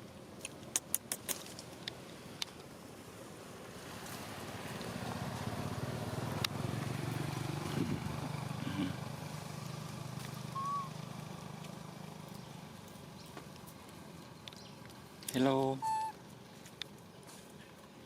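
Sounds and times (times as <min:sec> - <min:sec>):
vehicle engine running: 0:04.3 - 0:15.2
brief high squeak: 0:15.8 - 0:16.2.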